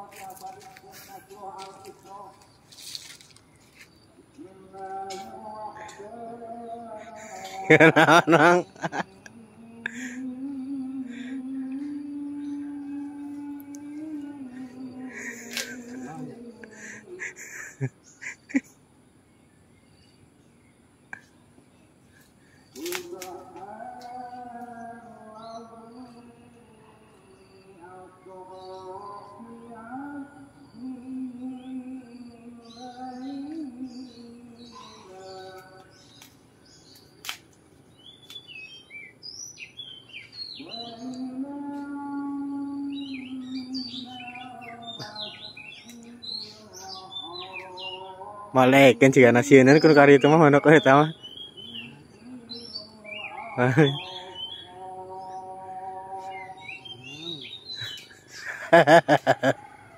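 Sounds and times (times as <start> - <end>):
bird singing whistled chirps: 30.8 - 37.3, 37.9 - 55.6, 56.2 - 59.8.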